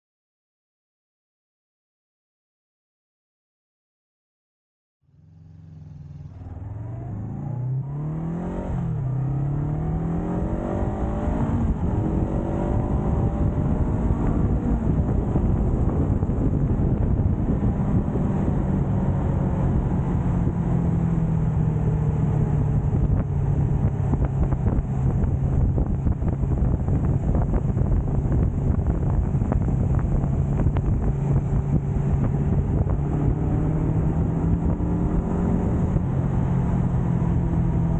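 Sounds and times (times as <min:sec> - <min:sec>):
motorcycle engine accelerating: 0:05.0 - 0:37.9
constant rushing noise: 0:11.6 - 0:37.9.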